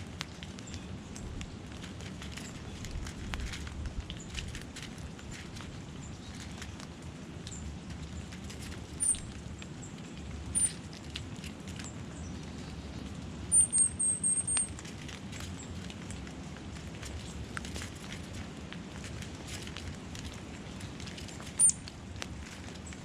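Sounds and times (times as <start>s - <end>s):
rain pattering: 0.0s - 23.0s
high-pitched bird chirps: 9.0s - 9.3s, 10.5s - 10.8s, 13.5s - 14.7s, 21.6s - 21.8s.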